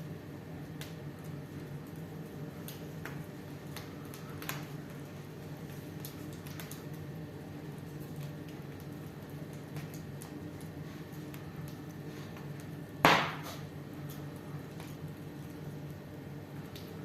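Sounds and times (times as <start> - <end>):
steady low hum: 0.0 - 17.0
wood fire crackling: 0.0 - 17.0
sharp pops of fire: 2.6 - 4.8, 11.3 - 15.0.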